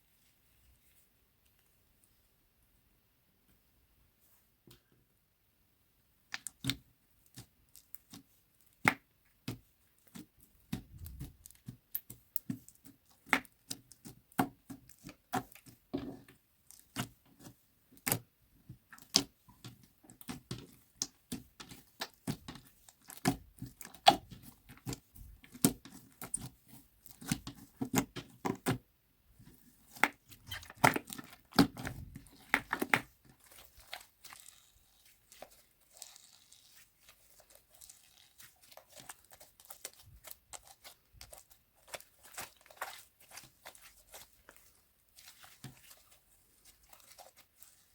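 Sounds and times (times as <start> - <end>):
slime popping and crackling: 29.9 - 44.4.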